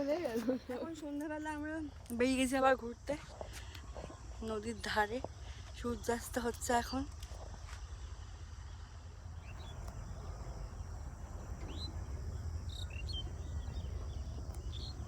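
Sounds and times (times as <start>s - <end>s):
crickets trilling: 0.0s - 15.0s
low rumble: 8.4s - 15.0s
bird chirps: 9.4s - 15.0s.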